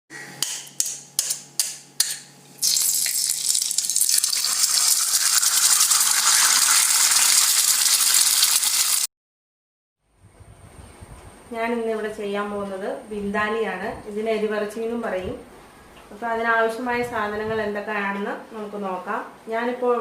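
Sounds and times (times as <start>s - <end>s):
food frying sizzle: 2.6s - 9.1s.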